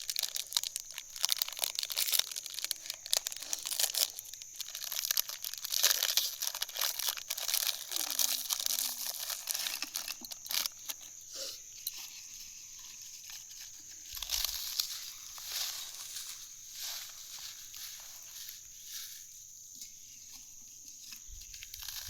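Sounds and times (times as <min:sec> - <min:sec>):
crackling rustling handling noise: 0:00.0 - 0:11.2, 0:11.8 - 0:22.0.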